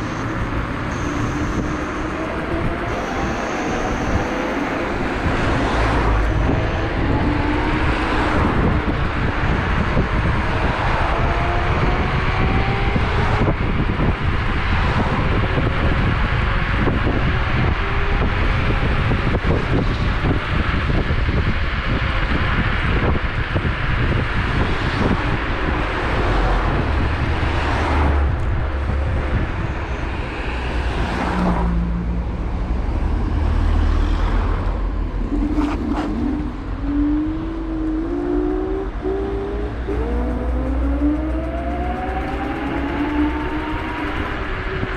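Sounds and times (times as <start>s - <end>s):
road rumble: 0.0s - 44.9s
wind on microphone: 0.0s - 44.9s
electric motor whine rising: 36.1s - 44.9s.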